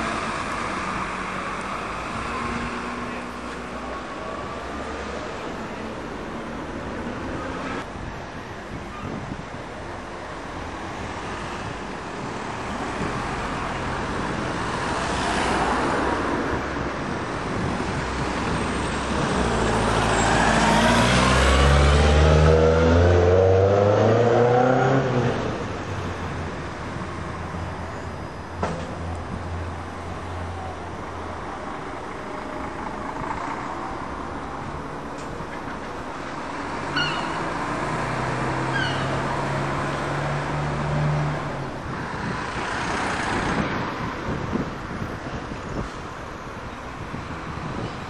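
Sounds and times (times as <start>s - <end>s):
background traffic noise: 0.0s - 48.0s
large vehicle engine passing: 18.6s - 25.7s.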